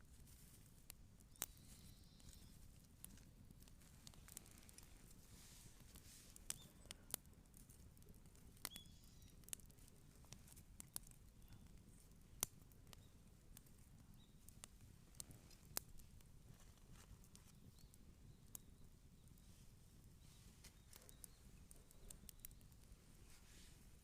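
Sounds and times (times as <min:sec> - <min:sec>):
campfire crackling and popping: 0:00.0 - 0:24.0
faint high chirp: 0:01.3 - 0:02.6, 0:08.7 - 0:09.4, 0:20.2 - 0:22.7.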